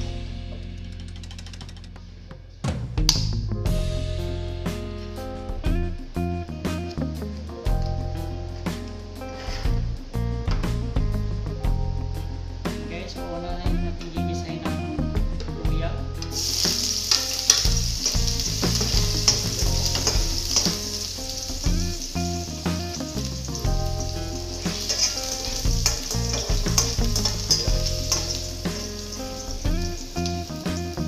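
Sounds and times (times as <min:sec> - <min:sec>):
background music: 0:00.0 - 0:31.0
food sizzling in a wok: 0:09.1 - 0:09.7, 0:16.3 - 0:31.0
spatula stirring in a wok: 0:16.4 - 0:22.2, 0:23.2 - 0:30.2.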